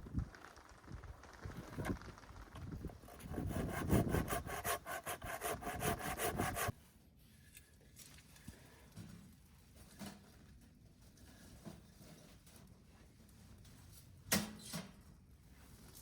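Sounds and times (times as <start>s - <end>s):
hand saw cutting log: 2.9s - 6.7s.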